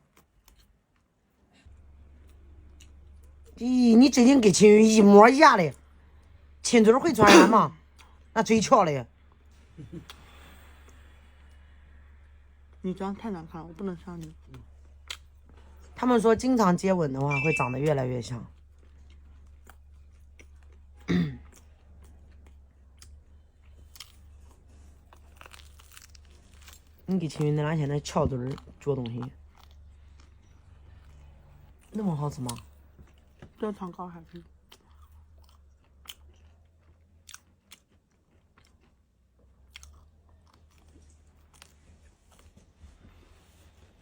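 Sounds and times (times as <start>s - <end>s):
people chewing food: 0.0s - 3.6s, 9.3s - 16.5s, 18.3s - 44.0s
short loud vocal sound: 7.1s - 7.7s.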